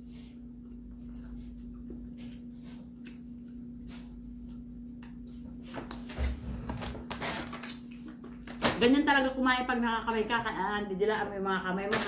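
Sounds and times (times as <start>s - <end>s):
steady hum: 0.0s - 12.0s
chewing and lip-smacking: 0.6s - 6.1s.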